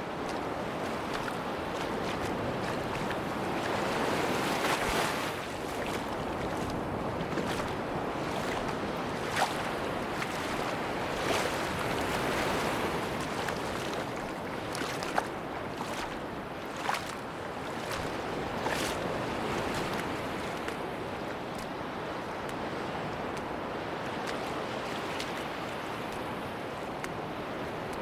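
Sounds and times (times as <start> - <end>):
sea waves washing on beach: 0.0 - 28.0.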